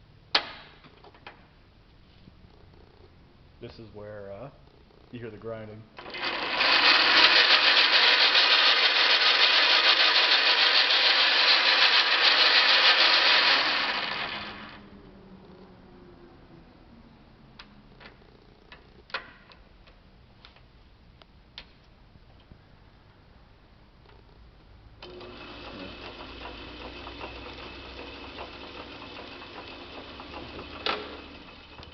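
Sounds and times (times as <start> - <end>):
metal lathe grinding: 6.0 - 14.8, 25.0 - 31.9.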